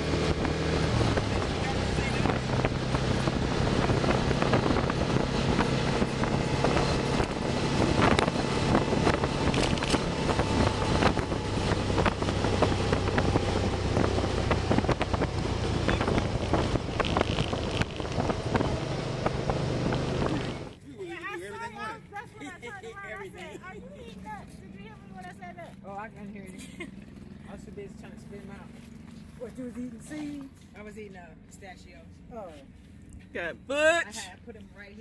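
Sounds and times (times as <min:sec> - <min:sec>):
motorcycle engine cruising: 0:00.0 - 0:20.8, 0:23.1 - 0:32.8
wind buffeting microphone: 0:00.0 - 0:20.8.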